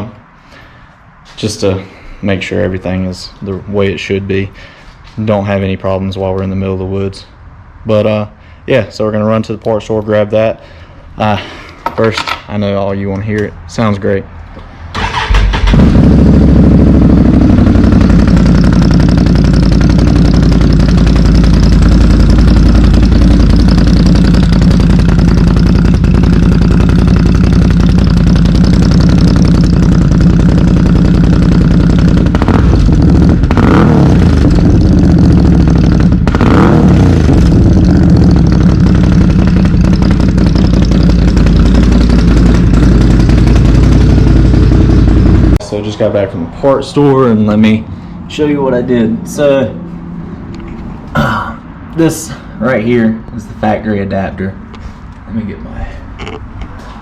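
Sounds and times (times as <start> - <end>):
engine throttle blips: 15.0 - 46.3
atv engine idling loudly: 15.1 - 45.6.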